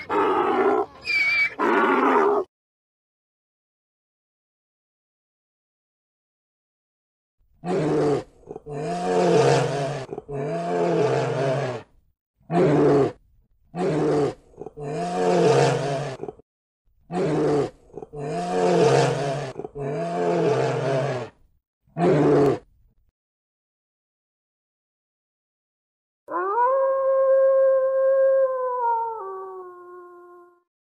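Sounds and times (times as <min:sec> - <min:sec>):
bear growls: 0:07.6 - 0:11.9, 0:12.5 - 0:16.4, 0:17.1 - 0:21.4, 0:22.0 - 0:22.7.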